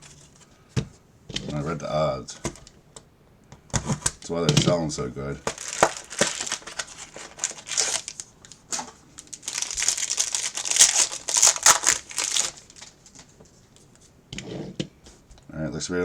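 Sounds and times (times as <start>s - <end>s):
card wrappers crinkling: 5.4s - 13.9s.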